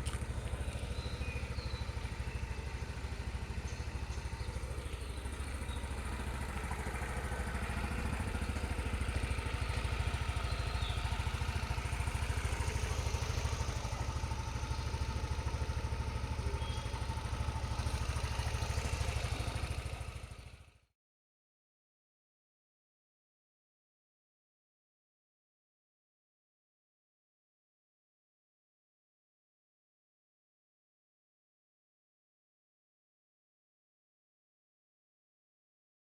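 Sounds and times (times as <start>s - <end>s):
scooter engine idling: 0.0s - 20.8s.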